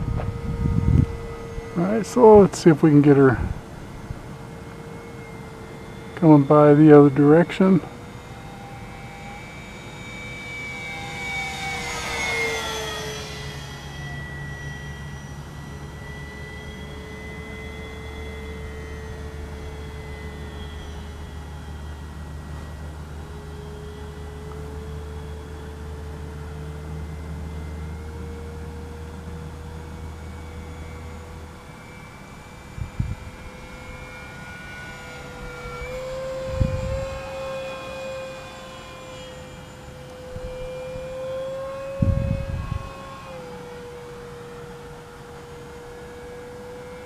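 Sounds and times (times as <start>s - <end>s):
wind rumbling on microphone: 0.0s - 4.3s, 32.7s - 33.9s, 35.4s - 37.3s, 41.9s - 43.0s
low rumble: 0.0s - 4.4s
model airplane motor whine: 0.0s - 47.0s.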